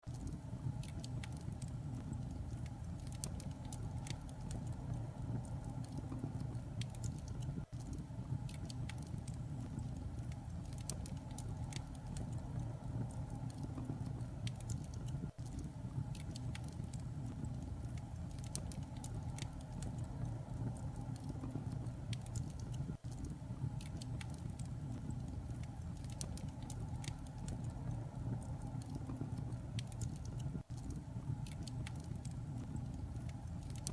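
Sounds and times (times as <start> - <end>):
constant low rumble: 0.0 - 33.9
small clicks and crackles: 0.0 - 33.9.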